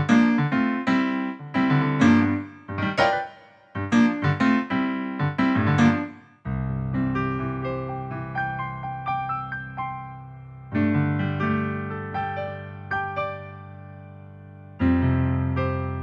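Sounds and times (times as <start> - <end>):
keyboard piano chords: 0.0 - 16.0.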